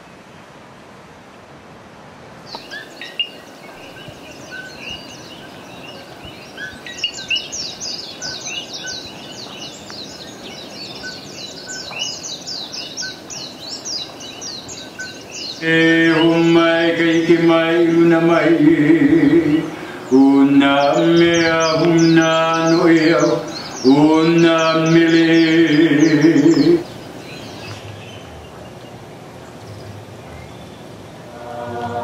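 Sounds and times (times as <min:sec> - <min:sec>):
steady background hiss: 0:00.0 - 0:32.0
birds chirping chorus: 0:02.5 - 0:32.0.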